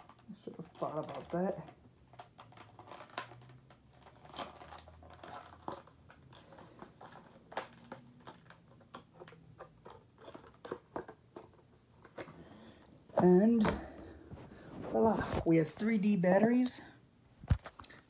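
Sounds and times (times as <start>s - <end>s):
package crinkling and tearing: 0.0s - 12.3s.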